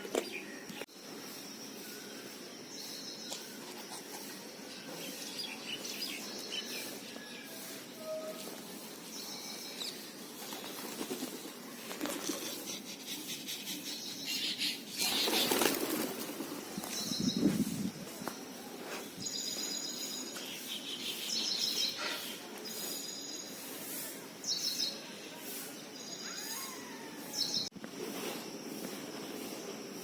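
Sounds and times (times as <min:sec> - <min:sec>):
outdoor background hiss: 0:00.0 - 0:30.0
small birds chirping: 0:00.2 - 0:07.9, 0:08.8 - 0:17.7, 0:18.9 - 0:23.8.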